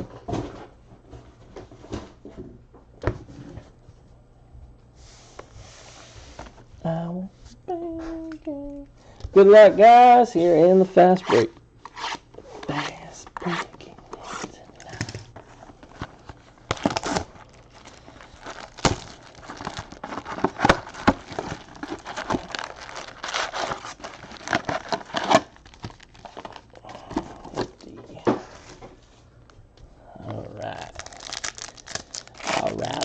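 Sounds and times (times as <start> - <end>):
plastic wrappers tearing and crinkling: 15.8 - 28.0, 30.5 - 33.0.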